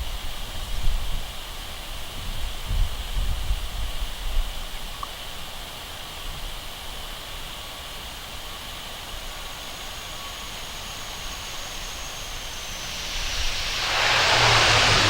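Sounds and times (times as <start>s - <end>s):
airliner engine rush: 9.3s - 15.0s.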